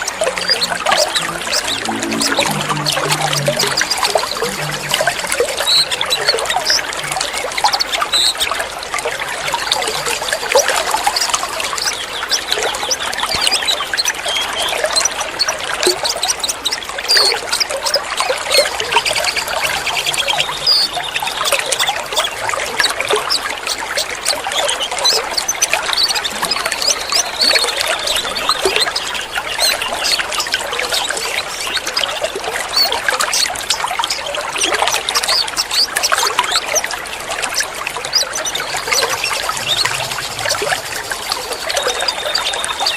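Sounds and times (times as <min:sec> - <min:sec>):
water trickling and splashing: 0:00.0 - 0:42.9
high bird chirps: 0:38.0 - 0:42.9.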